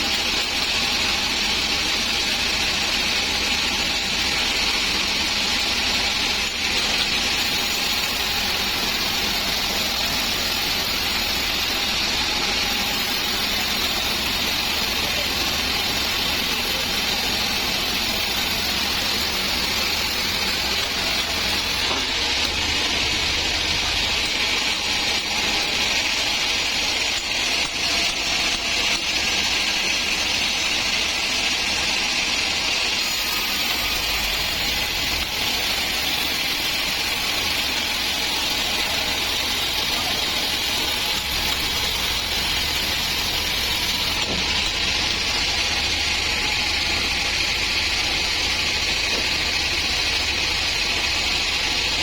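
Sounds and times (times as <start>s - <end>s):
saw blade hissing through wood: 32.9s - 45.0s.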